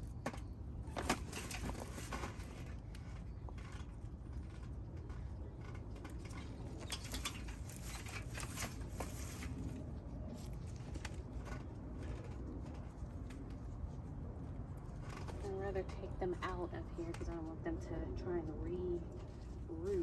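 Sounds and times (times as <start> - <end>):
vines and leaves rustling: 0.0 - 15.7.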